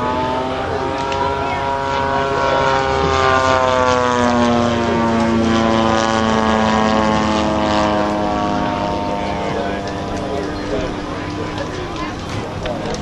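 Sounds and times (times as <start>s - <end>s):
model plane engine and propeller: 0.0s - 13.0s.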